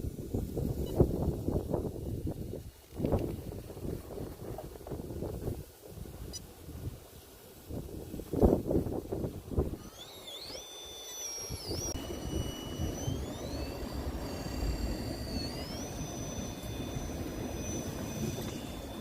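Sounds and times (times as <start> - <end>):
electric motor whine: 8.3 - 19.0.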